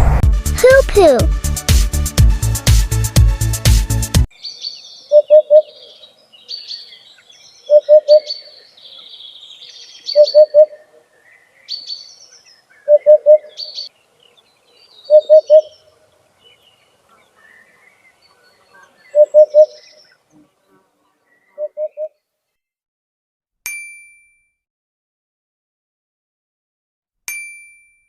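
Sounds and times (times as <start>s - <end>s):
small birds chirping: 4.3s - 22.3s
hoopoe hooting: 5.1s - 6.0s, 15.1s - 15.8s.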